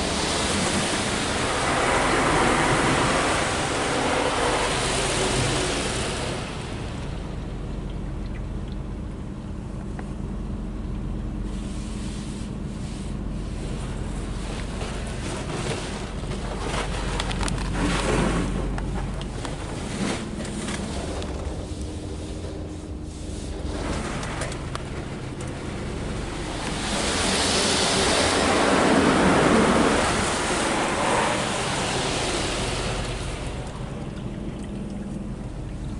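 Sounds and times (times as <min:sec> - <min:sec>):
water spray rushing: 0:00.0 - 0:07.4, 0:21.6 - 0:34.9
water splashing and slapping: 0:00.0 - 0:10.0, 0:11.4 - 0:35.9
car wash machine hum: 0:00.0 - 0:35.9.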